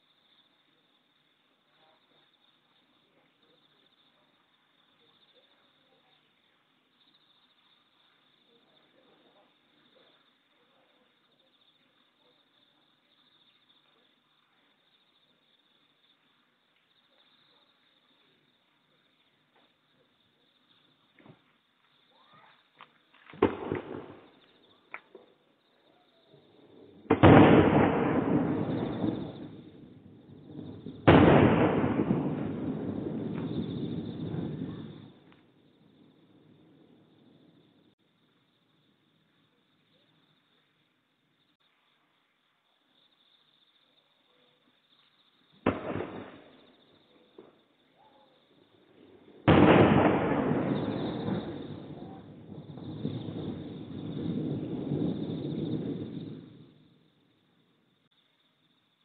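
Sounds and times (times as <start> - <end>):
distant firework mortar thump: 22.8 - 25.4, 27.1 - 29.7, 30.5 - 35.5, 45.6 - 47.6, 49.4 - 56.6.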